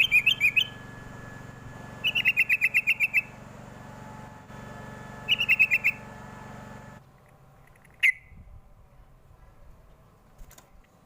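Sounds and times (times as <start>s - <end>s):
bird chirping: 0.0s - 0.9s, 2.0s - 3.4s, 5.3s - 6.1s, 7.6s - 8.5s
bird downward-sliding call: 0.0s - 1.0s, 2.0s - 3.4s, 5.2s - 6.1s
steady low hum: 0.0s - 11.0s.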